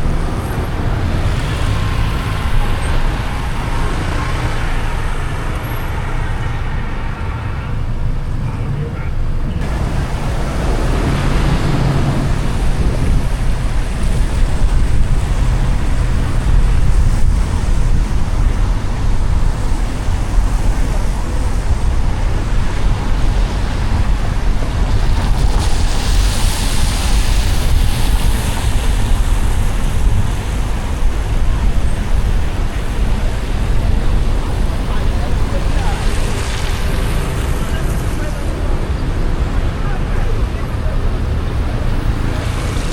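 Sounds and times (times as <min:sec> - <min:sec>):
car tyre noise on wet road: 0:00.0 - 0:42.9
water spray hiss: 0:25.0 - 0:30.6.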